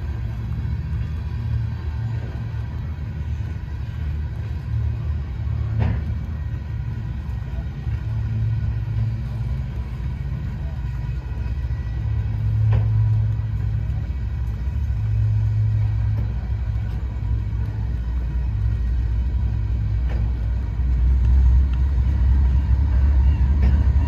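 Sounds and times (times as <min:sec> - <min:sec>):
freight train wheels rumbling: 0:00.0 - 0:24.0
sharp train wheel clacks: 0:12.3 - 0:24.0.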